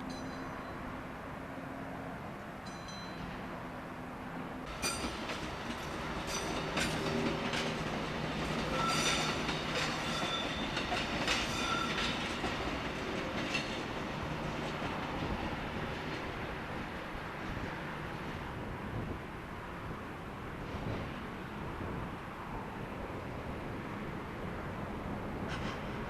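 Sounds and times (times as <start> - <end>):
train rumbling on rails: 0.0 - 26.0
wheels clicking over rail joints: 4.7 - 15.3
wheel squeals: 8.5 - 12.4.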